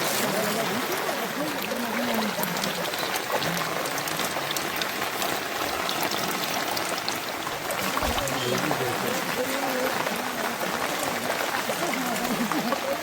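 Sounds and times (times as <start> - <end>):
raindrops ticking sharply: 0.0 - 13.0
steady rain falling: 0.0 - 13.0
faint voice: 7.8 - 13.0.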